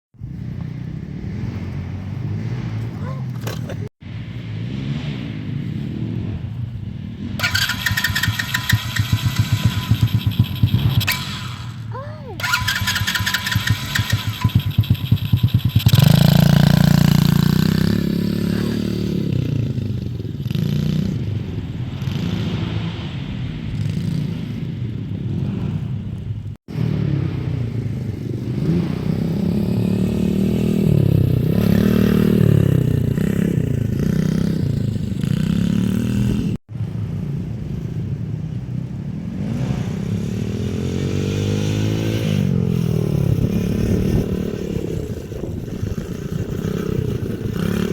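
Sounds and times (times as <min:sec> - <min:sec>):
dirt bike engine revving: 0:07.2 - 0:23.1, 0:26.7 - 0:36.6, 0:39.4 - 0:47.9.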